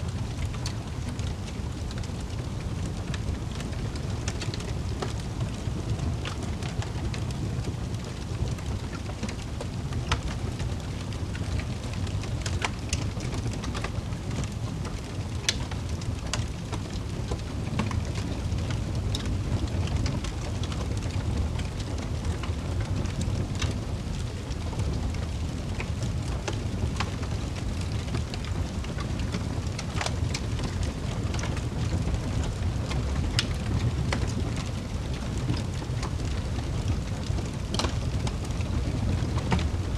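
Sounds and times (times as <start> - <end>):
log fire crackling: 0.0 - 39.9.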